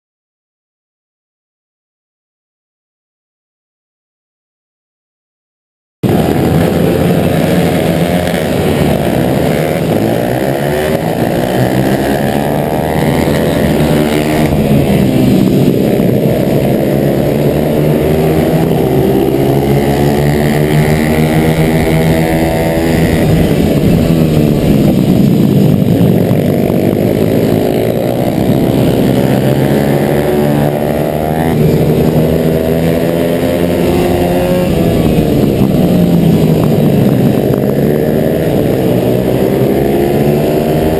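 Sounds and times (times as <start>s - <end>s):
motorcycle engine revving: 6.0s - 40.9s.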